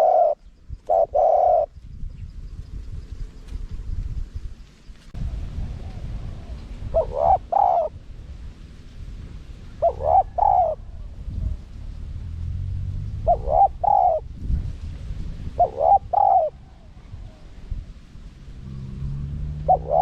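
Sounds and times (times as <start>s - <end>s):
dove cooing: 0.0s - 1.8s, 5.6s - 8.0s, 9.7s - 11.6s, 13.1s - 14.3s, 15.5s - 17.7s, 19.5s - 20.0s
low steady rumble: 1.7s - 20.0s.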